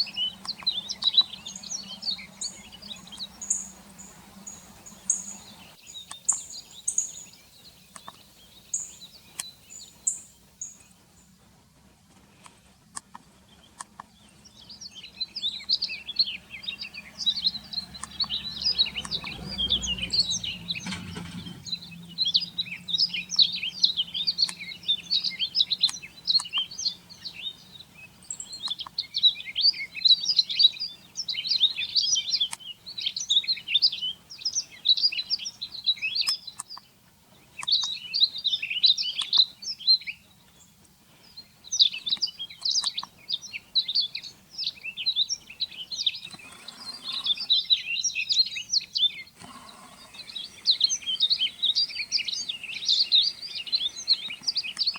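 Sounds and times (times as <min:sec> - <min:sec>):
birds twittering: 0:00.0 - 0:11.4, 0:12.2 - 0:54.9
low rumble: 0:17.4 - 0:22.6.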